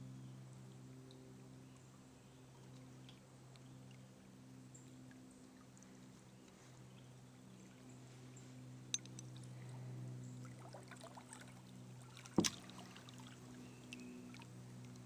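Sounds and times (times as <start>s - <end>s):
small water splashes: 10.4s - 15.0s.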